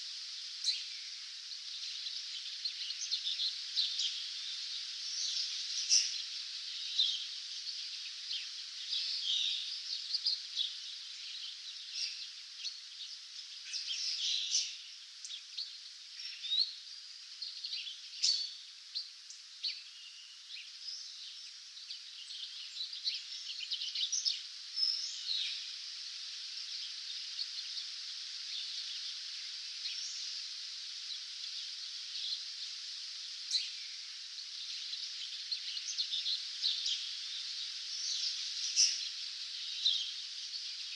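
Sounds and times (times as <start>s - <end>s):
songbirds chirping and trilling: 0.0s - 40.9s
steady high hiss: 0.0s - 40.9s.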